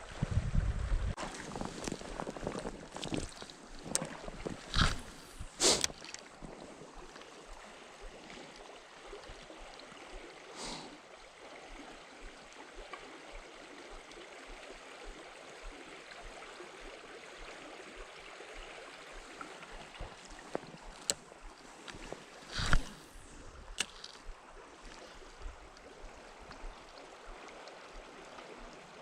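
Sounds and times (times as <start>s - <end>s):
river current flowing: 1.2s - 29.0s.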